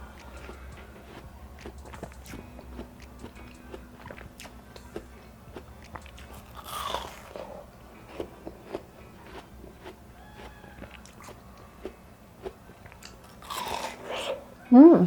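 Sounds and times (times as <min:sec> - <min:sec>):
biting and chewing watermelon: 0:00.0 - 0:14.5.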